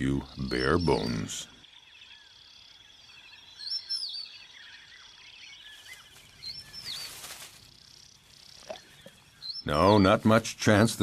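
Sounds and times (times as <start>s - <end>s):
birds whistling calls: 3.1s - 9.9s
high insect trill: 5.1s - 9.5s.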